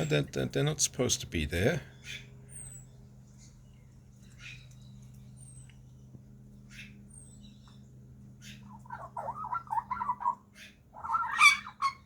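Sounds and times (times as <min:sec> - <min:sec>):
harsh bird call: 0:08.4 - 0:12.0
magpie warbling and chattering: 0:08.7 - 0:10.4, 0:11.0 - 0:12.0.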